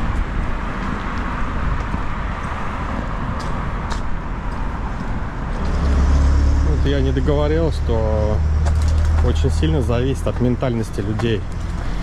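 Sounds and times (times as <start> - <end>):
car traffic passing: 0.0 - 12.0.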